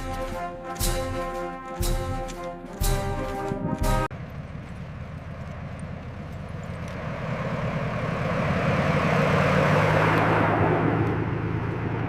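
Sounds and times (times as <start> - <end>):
brass orchestral music with drums: 0.0 - 4.1
aircraft engines: 0.0 - 12.0.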